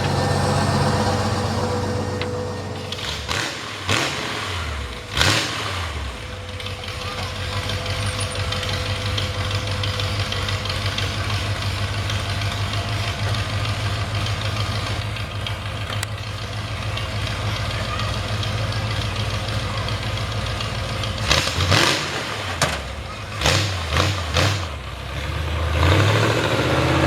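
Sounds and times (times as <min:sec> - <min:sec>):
vehicle engine idling unevenly: 0:00.0 - 0:27.0.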